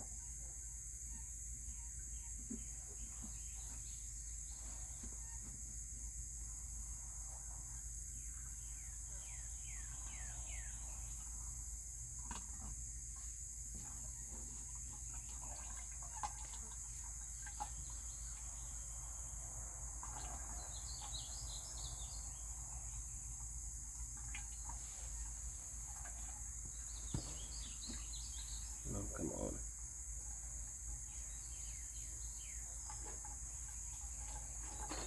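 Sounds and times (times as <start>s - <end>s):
insect drone: 0.0s - 35.0s
birds chirping: 8.0s - 11.5s, 17.4s - 35.0s.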